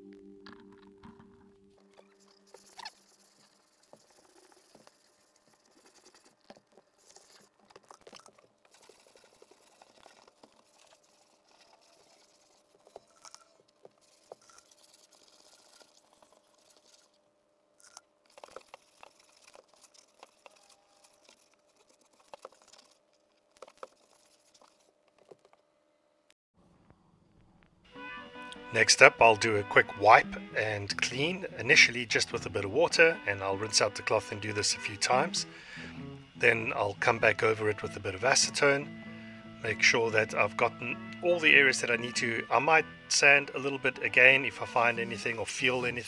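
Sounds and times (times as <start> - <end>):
hand sanding scratching: 2.1 - 7.5, 8.7 - 17.2, 18.3 - 25.0, 44.5 - 46.0.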